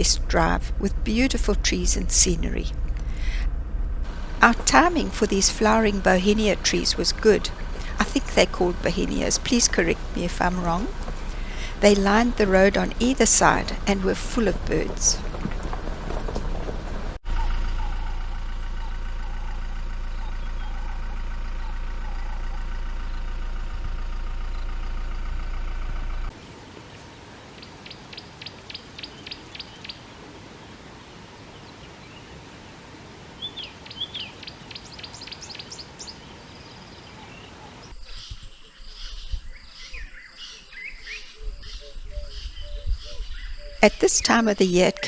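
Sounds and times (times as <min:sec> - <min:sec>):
vehicle engine droning: 0:00.0 - 0:27.8
birds calling: 0:04.2 - 0:15.9, 0:17.2 - 0:25.8, 0:26.8 - 0:45.0
bird trills: 0:17.3 - 0:23.3.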